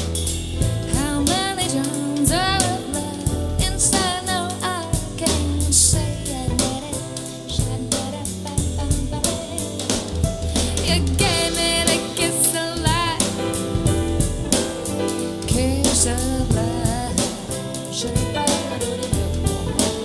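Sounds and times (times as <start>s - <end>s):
bass: 0.0s - 20.0s
drum kit: 0.0s - 20.0s
person singing with vibrato: 0.9s - 9.8s, 10.6s - 13.4s.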